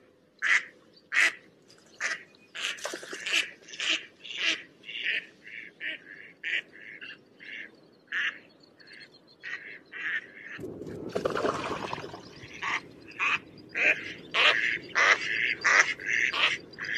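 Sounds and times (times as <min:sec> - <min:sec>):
ducks quacking: 0:11.8 - 0:16.9.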